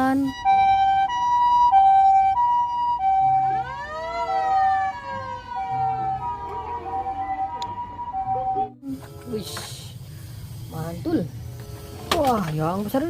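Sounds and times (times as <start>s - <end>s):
two-tone siren: 0.0s - 8.8s
wailing siren: 0.0s - 8.8s.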